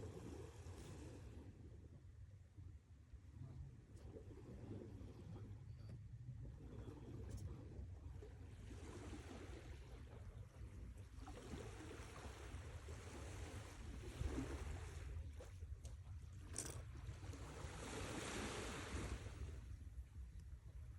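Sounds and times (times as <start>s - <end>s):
sea waves washing in: 17.2s - 20.0s.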